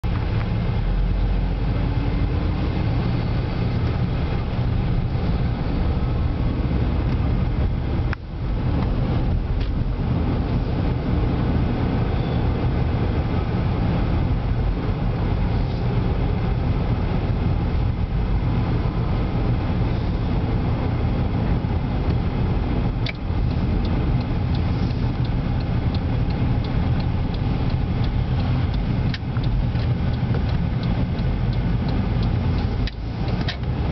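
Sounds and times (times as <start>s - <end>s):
light ticks: 23.0s - 33.9s.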